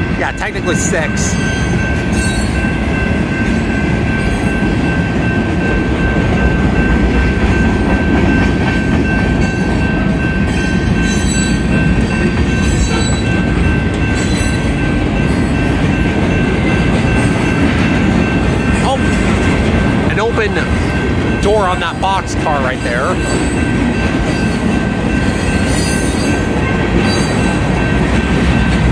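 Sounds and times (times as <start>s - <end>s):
train clacks: 0.0s - 28.9s
train wheels rumbling on rail: 0.0s - 28.9s.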